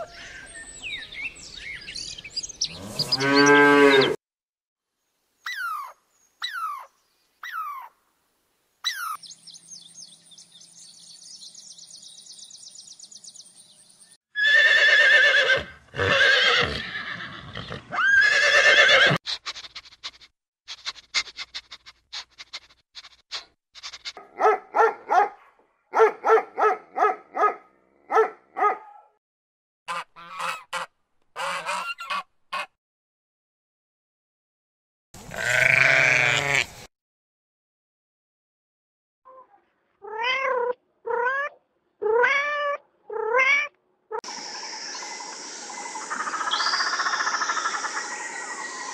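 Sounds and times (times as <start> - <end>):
goat bleating: 35.3 - 36.8
loud animal calls: 46.0 - 48.9.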